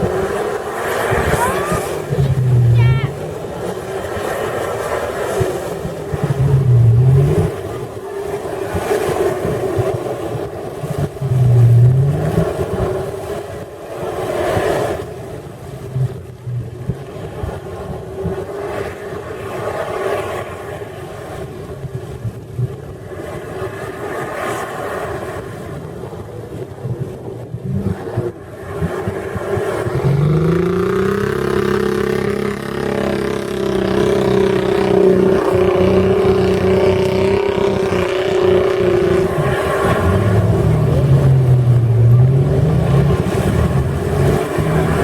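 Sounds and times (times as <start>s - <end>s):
wind noise on microphone: 0.0s - 45.0s
truck engine revving under load: 28.9s - 45.0s.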